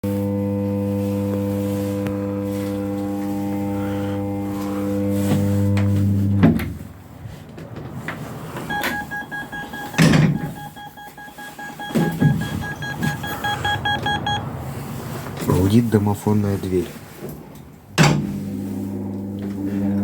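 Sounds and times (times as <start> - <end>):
door lock humming: 8.7 - 11.1.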